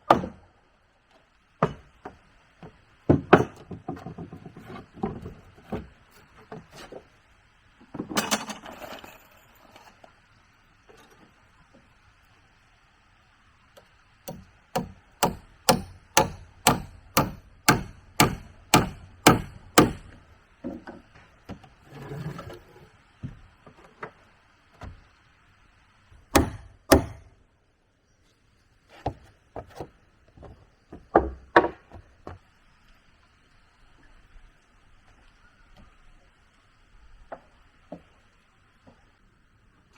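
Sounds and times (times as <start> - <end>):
tool striking wood: 14.3 - 20.2, 26.3 - 27.3.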